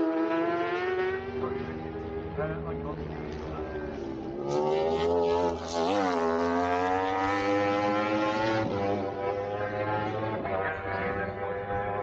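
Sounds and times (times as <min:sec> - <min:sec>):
motorcycle engine revving past: 0:04.2 - 0:12.0.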